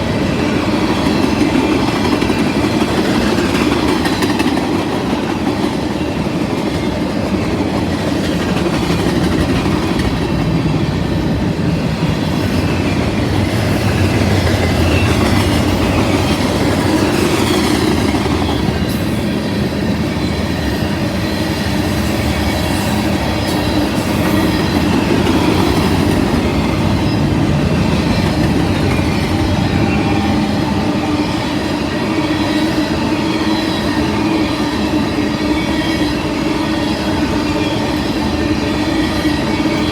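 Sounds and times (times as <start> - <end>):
freight cars rumbling: 7.3 - 32.8.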